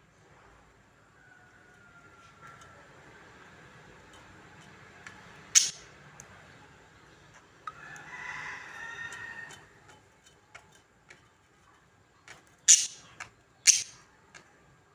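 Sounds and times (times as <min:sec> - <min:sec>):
budgerigars warbling chatter: 0:05.6 - 0:05.8, 0:12.7 - 0:13.1, 0:13.7 - 0:14.0.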